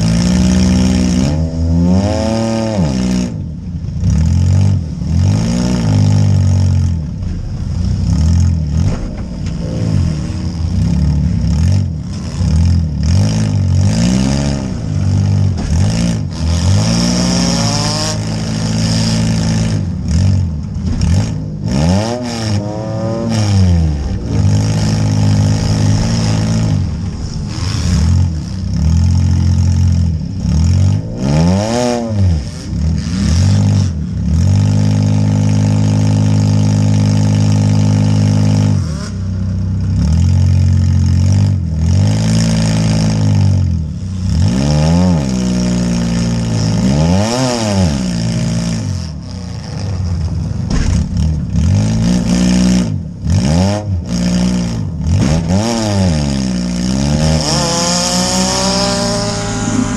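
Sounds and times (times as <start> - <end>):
car engine revving: 0.0 - 59.9
car body knocking and clattering: 6.8 - 10.0, 14.7 - 16.2, 50.6 - 51.8.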